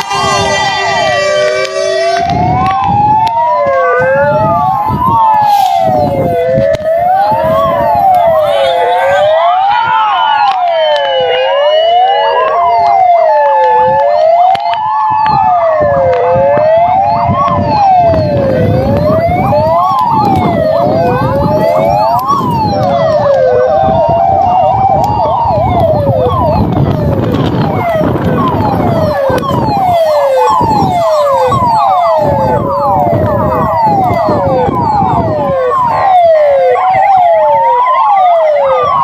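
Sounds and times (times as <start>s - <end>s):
rushing noise: 0.0s - 9.5s
fire engine sirens wailing: 0.0s - 39.0s.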